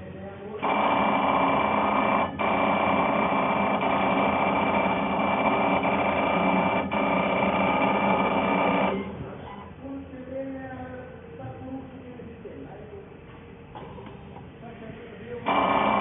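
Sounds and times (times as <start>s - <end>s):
machine running with high whine: 0.0s - 9.6s, 15.2s - 16.0s.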